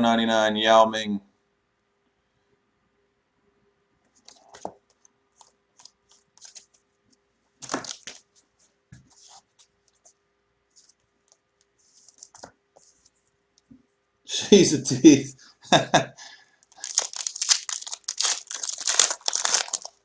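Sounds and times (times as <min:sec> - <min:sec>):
pack wrapper crinkling: 0:07.6 - 0:08.2, 0:16.7 - 0:20.0.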